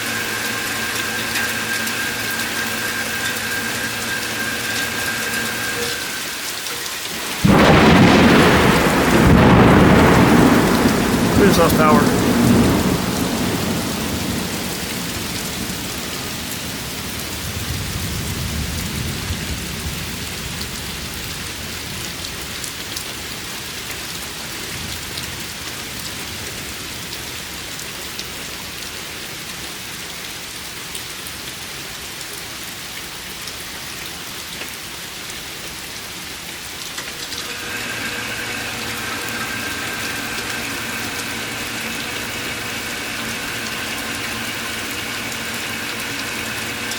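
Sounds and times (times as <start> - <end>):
mechanical hum with held tones: 0.0 - 6.5, 37.3 - 46.9
heavy rain: 0.0 - 46.9
thunder rumbling: 7.3 - 20.0.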